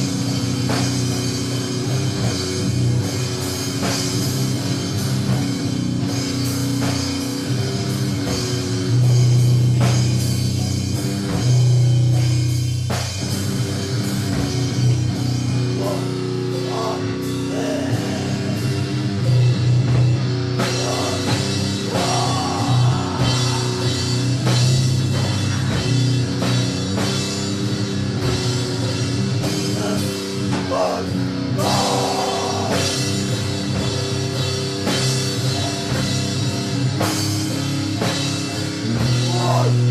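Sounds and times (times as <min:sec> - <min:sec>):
distorted droning guitar chords: 0:00.0 - 0:39.9
drum kit: 0:00.0 - 0:39.9.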